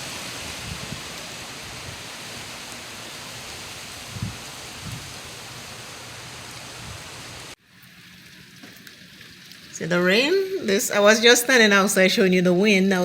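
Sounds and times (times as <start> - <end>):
wind buffeting microphone: 0.0 - 2.2, 3.8 - 5.4
gusty wind rushing: 0.0 - 2.6, 3.6 - 5.4.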